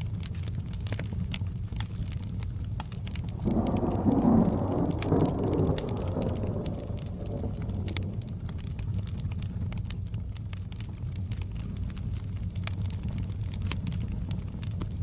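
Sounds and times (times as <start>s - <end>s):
steady rain: 0.0s - 15.0s
wood fire crackling: 0.0s - 15.0s
thunder rolling: 3.1s - 9.5s.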